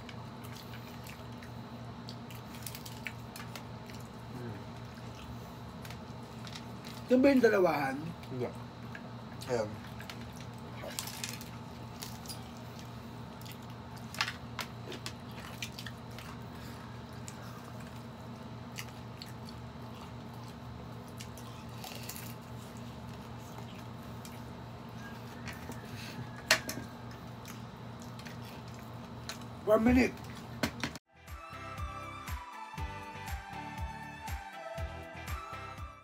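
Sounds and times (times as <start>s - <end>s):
steady low hum: 0.0s - 32.2s
chewing and biting food: 0.1s - 7.1s, 8.1s - 29.6s.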